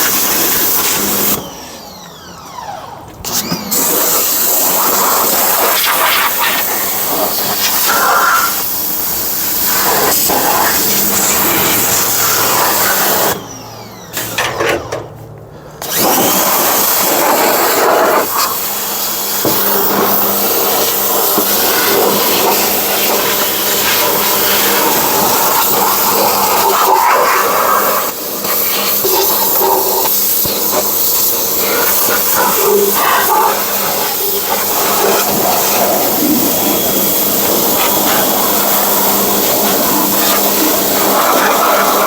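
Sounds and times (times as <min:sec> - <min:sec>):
pressure washer spraying water: 0:00.0 - 0:01.8, 0:03.2 - 0:13.4, 0:15.8 - 0:42.0
pump hum: 0:06.3 - 0:26.6.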